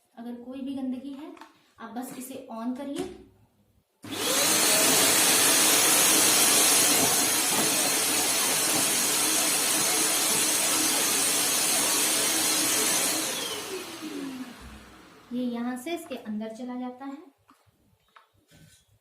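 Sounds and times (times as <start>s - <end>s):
vacuum cleaner running: 4.0s - 15.5s.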